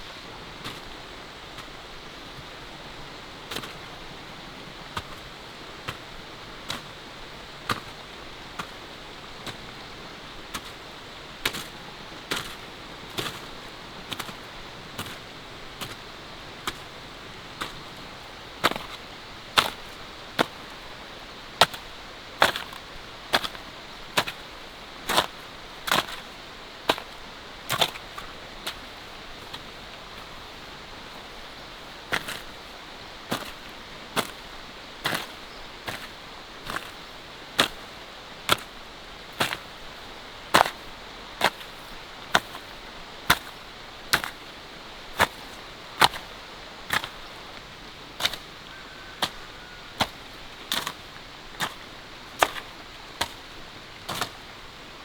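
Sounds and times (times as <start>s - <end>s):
steady hiss: 0.0s - 55.0s.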